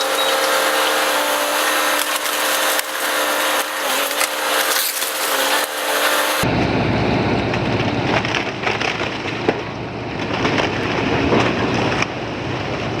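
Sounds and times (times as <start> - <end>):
wood cracking and crashing: 0.0 - 6.4, 7.5 - 12.3
machine engine running: 0.0 - 13.0.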